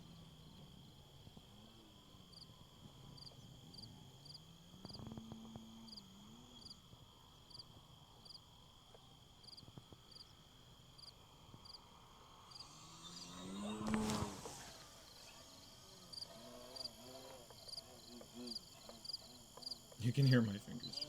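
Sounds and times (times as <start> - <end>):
high insect whine: 0.0 - 21.0
high chirps of insects or frogs: 1.9 - 21.0
distant model plane motor: 11.1 - 21.0.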